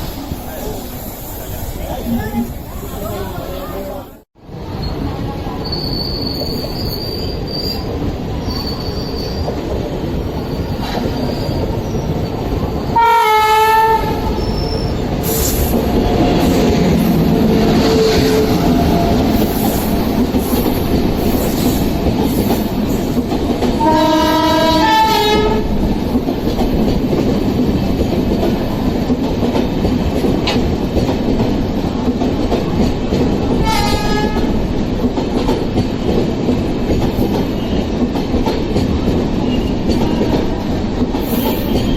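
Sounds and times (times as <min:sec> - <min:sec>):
train rumbling past: 0:00.0 - 0:41.9
train horn blasts: 0:13.0 - 0:14.4, 0:23.8 - 0:25.7, 0:33.6 - 0:34.5.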